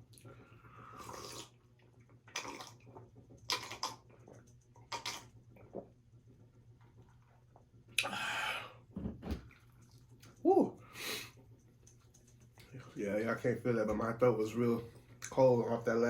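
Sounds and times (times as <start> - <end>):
person sipping and slurping drink: 0.1 - 5.9.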